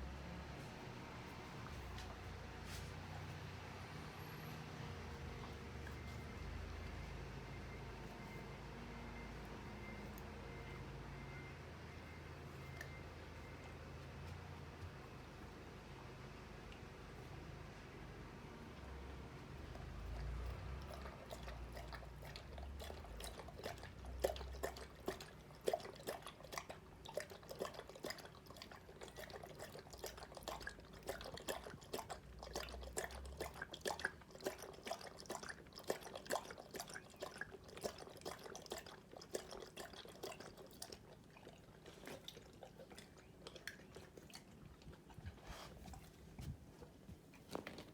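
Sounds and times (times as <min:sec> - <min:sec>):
dog eating wet smacks: 0:18.7 - 0:47.9.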